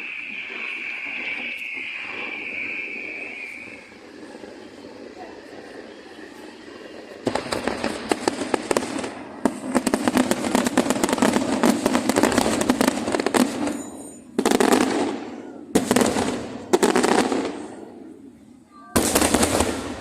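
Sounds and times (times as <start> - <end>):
fireworks crackling: 0.0 - 20.0
fireworks bangs with echo: 7.2 - 20.0.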